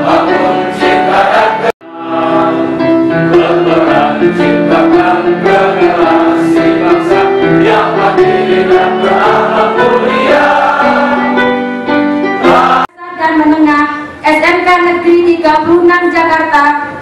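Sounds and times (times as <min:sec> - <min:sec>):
choir singing with instruments: 0:00.0 - 0:12.9
woman speaking through microphone: 0:13.0 - 0:17.0.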